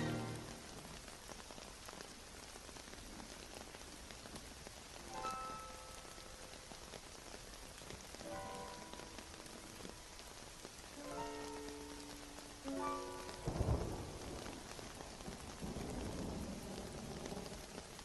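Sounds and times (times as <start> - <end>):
faint musical notes: 0.0 - 0.8
steady rain falling: 0.0 - 18.0
raindrop ticks: 0.3 - 18.0.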